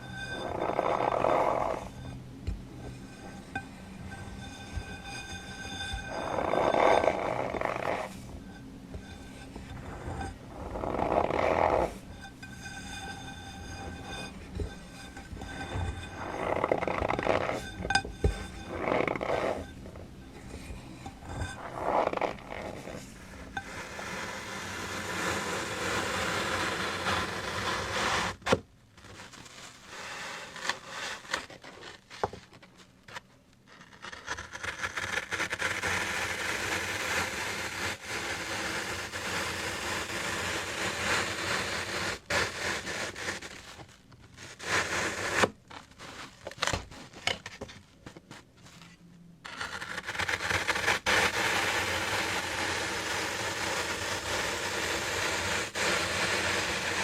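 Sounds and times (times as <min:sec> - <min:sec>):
close scraping and rustling: 0:00.0 - 0:26.3, 0:39.1 - 0:57.0.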